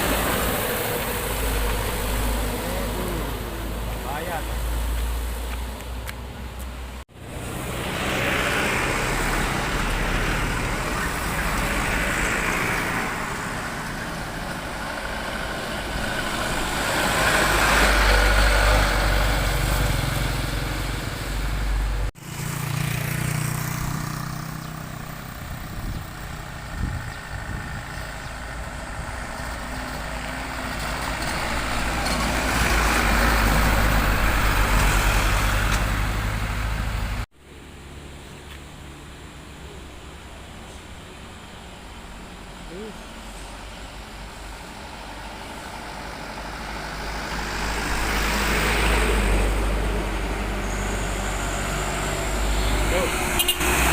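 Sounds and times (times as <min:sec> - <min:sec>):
heavy trucks passing: 0:00.0 - 0:53.9.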